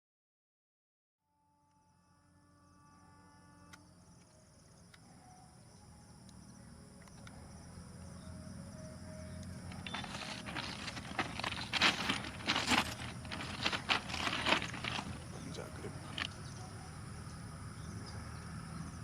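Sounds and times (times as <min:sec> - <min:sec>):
insects chirring: 0:01.8 - 0:19.0
train rumble: 0:09.5 - 0:16.6
loud rough rattling: 0:09.7 - 0:16.4.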